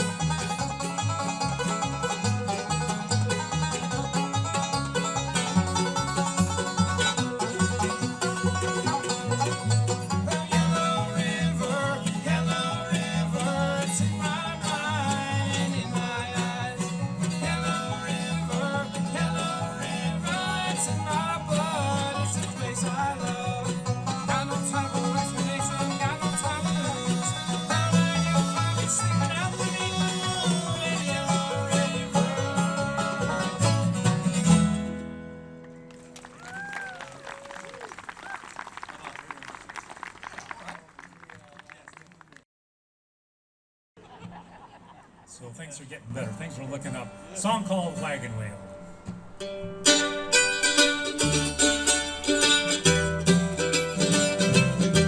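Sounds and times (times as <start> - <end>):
steady bass line: 0.0 - 35.0, 49.9 - 55.0
rapid banjo picking: 0.0 - 35.1, 49.4 - 55.0
strummed guitar: 0.0 - 35.9, 46.1 - 55.0.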